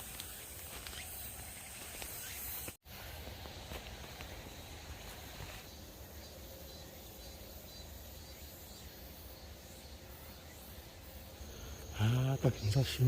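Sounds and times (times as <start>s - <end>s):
insect trill: 0.0s - 13.0s.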